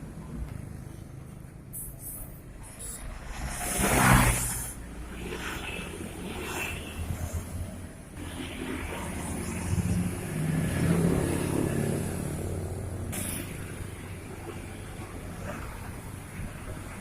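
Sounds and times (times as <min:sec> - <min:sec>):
heavy truck engine passing: 0:07.1 - 0:17.0.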